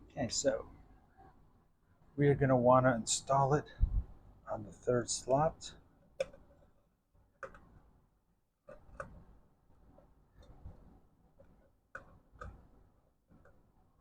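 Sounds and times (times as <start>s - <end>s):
faint sharp clicks and taps: 7.4s - 7.7s, 11.4s - 12.7s.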